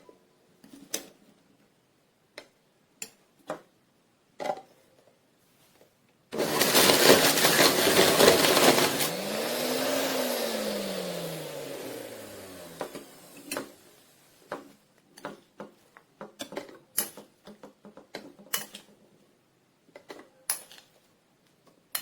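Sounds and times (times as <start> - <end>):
blender motor running: 6.4 - 13.8.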